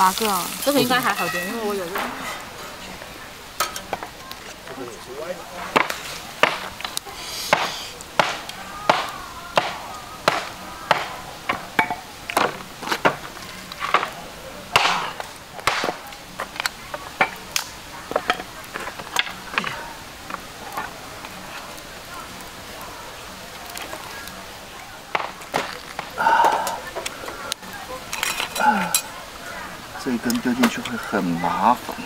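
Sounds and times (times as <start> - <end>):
machete chopping wood: 5.8 - 6.7, 7.5 - 11.6, 14.8 - 16.0.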